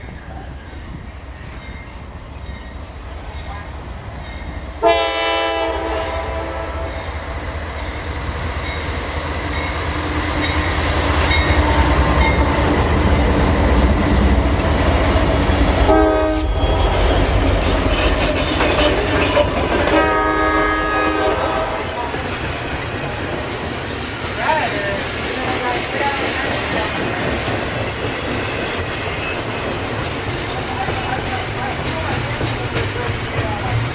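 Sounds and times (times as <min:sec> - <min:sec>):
train wheels rumbling: 0:00.0 - 0:33.9
locomotive horn blasts: 0:04.8 - 0:07.1, 0:15.8 - 0:17.2, 0:18.5 - 0:22.0.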